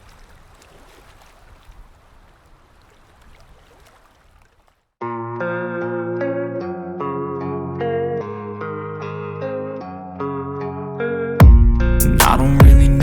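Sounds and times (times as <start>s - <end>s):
music with sustained chords: 5.0s - 13.0s
low rumble: 11.4s - 13.0s.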